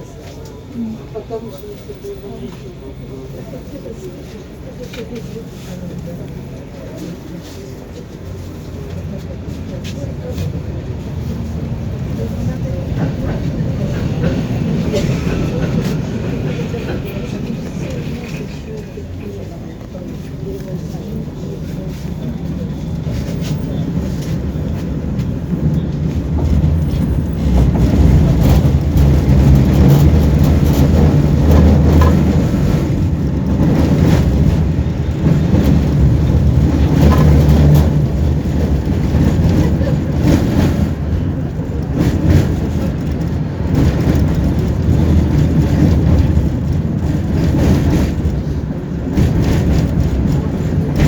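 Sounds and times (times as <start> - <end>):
tram wheels rumbling on rails: 0.0 - 51.0
rail clacks: 4.2 - 51.0.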